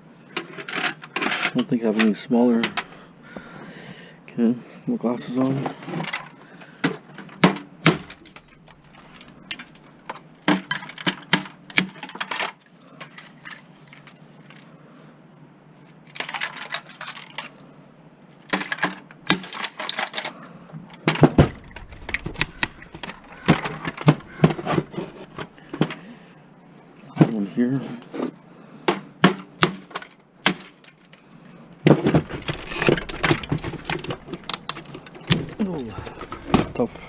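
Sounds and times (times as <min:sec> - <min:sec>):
small metal and plastic parts rattling: 0:05.8 - 0:14.6, 0:16.1 - 0:17.7, 0:18.5 - 0:26.0, 0:31.9 - 0:37.0.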